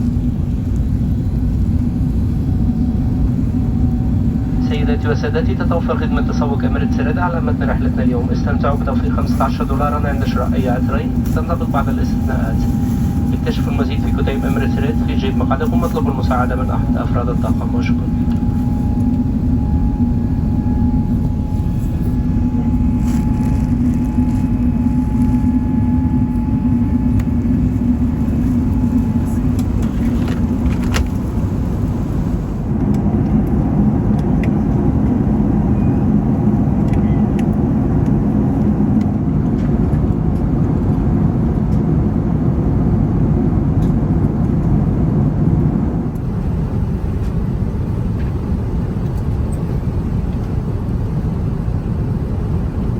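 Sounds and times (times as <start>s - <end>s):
low hum: 0.0s - 39.6s
aircraft cabin engine and airflow noise: 0.0s - 52.9s.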